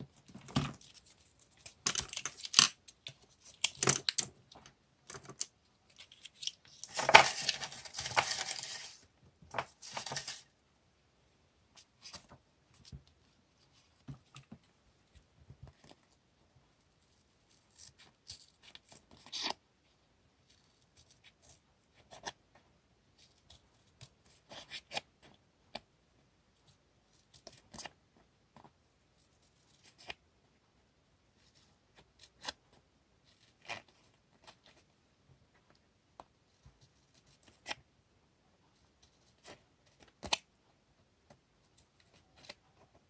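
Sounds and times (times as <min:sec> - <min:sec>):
paper and tape rustling: 0:05.1 - 0:10.5.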